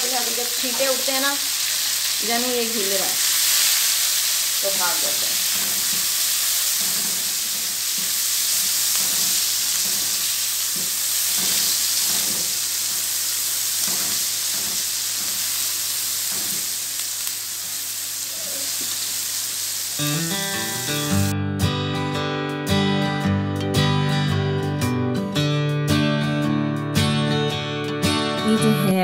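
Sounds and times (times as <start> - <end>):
vegetables sizzling in hot oil: 0.0 - 21.3
acoustic guitar music: 20.0 - 29.0.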